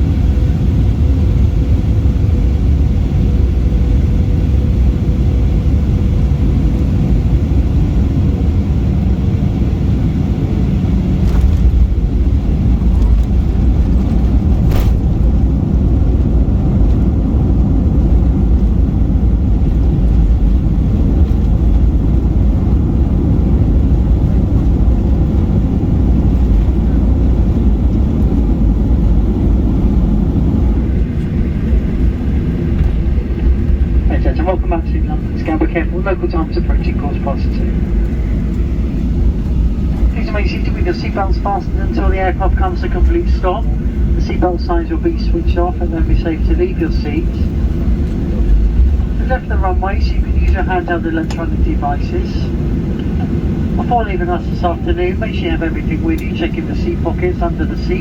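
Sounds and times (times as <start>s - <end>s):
airplane cabin rumble: 0.0s - 58.0s.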